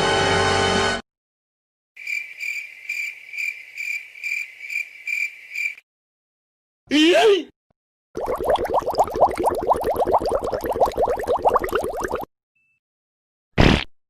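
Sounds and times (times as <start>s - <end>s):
music: 0.0s - 1.0s
crickets chirping: 2.0s - 5.8s.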